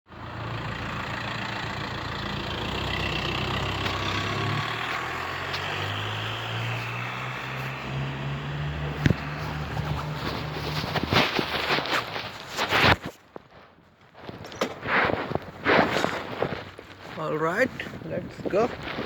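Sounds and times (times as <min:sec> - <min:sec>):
vehicle engine idling: 0:00.1 - 0:11.1.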